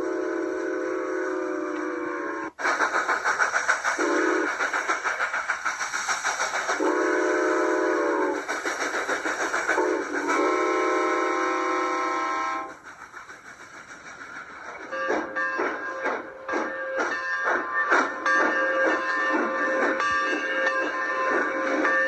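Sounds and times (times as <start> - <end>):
steam whistle blasts: 0.0 - 2.6, 4.0 - 4.5, 6.8 - 8.4, 9.8 - 12.8
model steam locomotive chuffing: 0.0 - 22.0.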